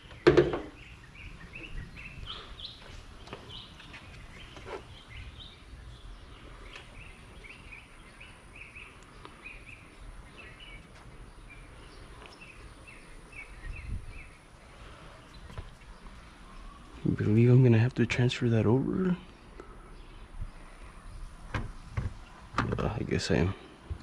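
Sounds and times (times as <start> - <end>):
bird chirping: 0.0 - 23.8
faint knock: 0.2 - 0.8.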